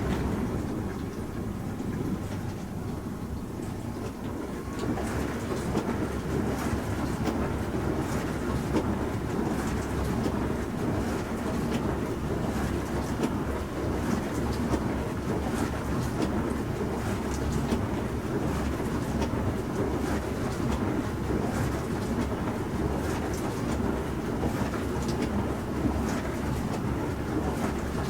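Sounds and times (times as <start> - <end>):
dishwasher running: 0.0 - 7.5.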